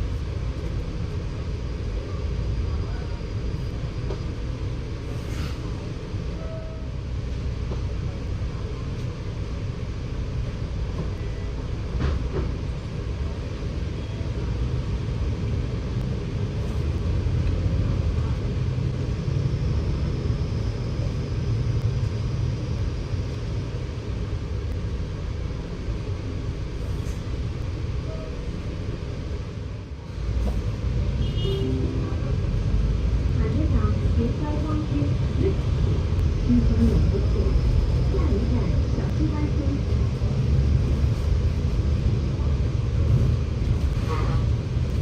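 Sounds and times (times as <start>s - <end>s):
bus engine and road rumble: 0.0s - 45.0s
faint high whine: 31.2s - 40.8s.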